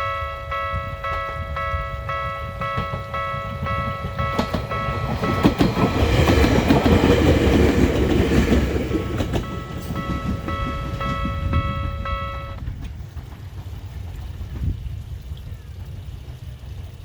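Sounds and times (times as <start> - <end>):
level crossing warning bells: 0.0 - 12.6
electric train passing: 0.0 - 17.0
wheels clacking over rail joints: 0.0 - 17.0.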